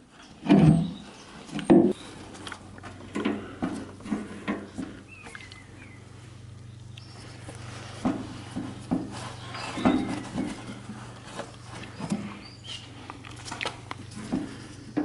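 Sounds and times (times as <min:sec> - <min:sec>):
steady low hum: 0:00.0 - 0:15.0
high squeaks: 0:09.1 - 0:12.9.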